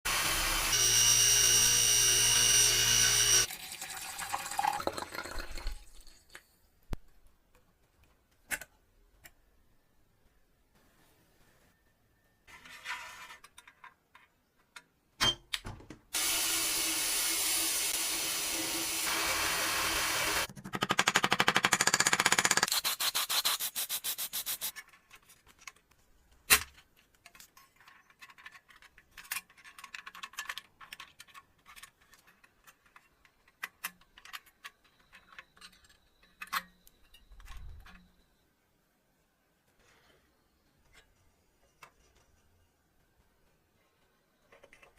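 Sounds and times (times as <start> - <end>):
sanding strokes: 22.7 - 24.7
clicks and knocks of parts: 24.7 - 38.2.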